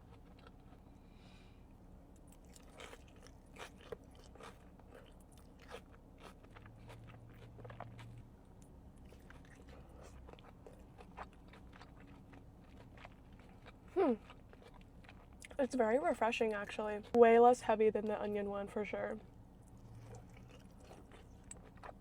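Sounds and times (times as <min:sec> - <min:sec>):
person chewing food: 0:00.0 - 0:01.2, 0:02.1 - 0:15.6, 0:19.3 - 0:22.0.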